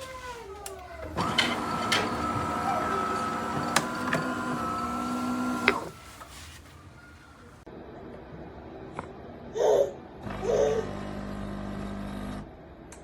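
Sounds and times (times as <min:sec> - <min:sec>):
coffee machine motor hum: 0:01.0 - 0:06.0, 0:10.2 - 0:12.6.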